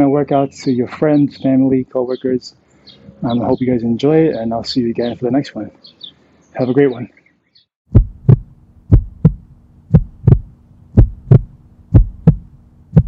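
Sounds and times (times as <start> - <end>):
heartbeat thumps: 7.9 - 13.0
steady low hum: 7.9 - 13.0.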